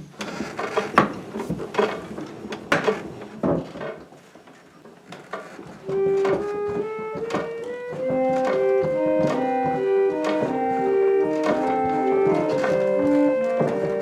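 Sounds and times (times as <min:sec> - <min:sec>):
reed organ playing slow tune: 0:05.8 - 0:14.0.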